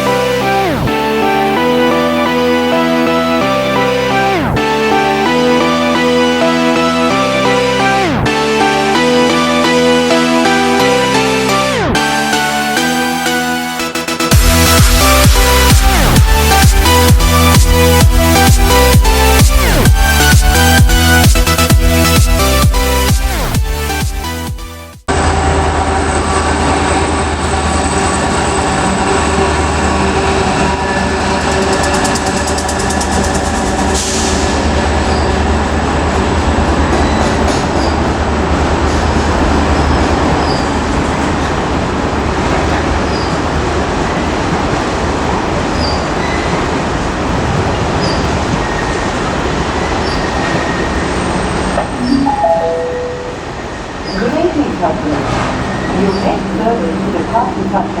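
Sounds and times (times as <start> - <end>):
diesel locomotive engine drumming: 0.0 - 58.0
train wheels on rails: 25.1 - 52.0
wheel squeal: 36.9 - 38.1, 39.7 - 40.8, 43.1 - 43.4, 45.7 - 46.6, 48.0 - 49.0, 50.0 - 51.0.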